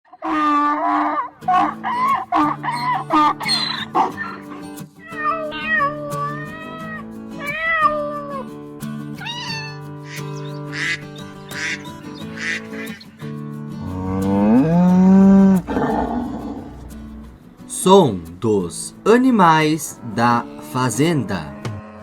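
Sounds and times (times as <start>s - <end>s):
rough animal calls: 0.1s - 8.4s, 9.2s - 17.5s
background music: 1.2s - 22.0s
cat meowing: 5.0s - 8.5s, 9.2s - 13.0s.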